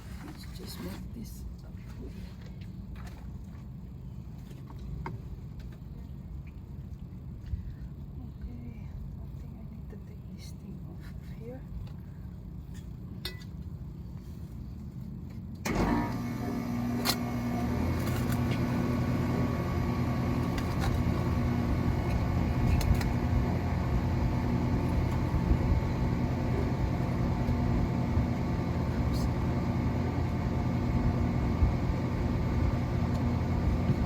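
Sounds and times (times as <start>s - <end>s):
motor running: 15.7s - 34.0s.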